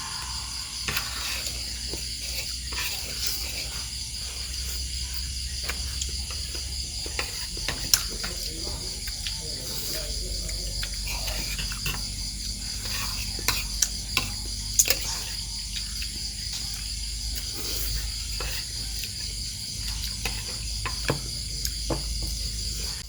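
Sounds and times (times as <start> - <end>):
insect chorus buzzing: 0.0 - 23.0.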